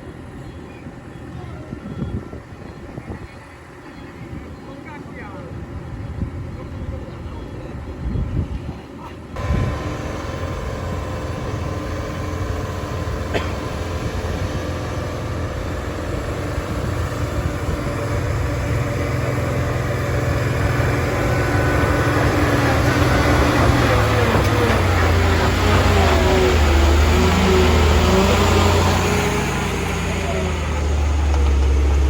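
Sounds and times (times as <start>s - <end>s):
vehicle engine running: 9.4s - 32.0s.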